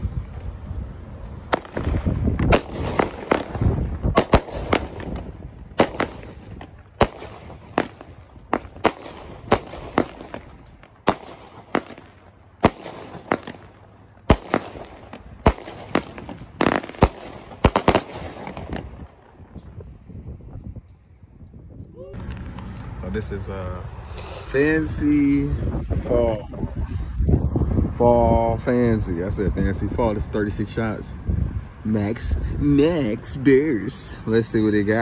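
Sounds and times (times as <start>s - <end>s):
firework crackle: 1.5s - 19.8s
firework shells bursting: 1.5s - 19.8s
firework shots lifting: 1.5s - 19.9s.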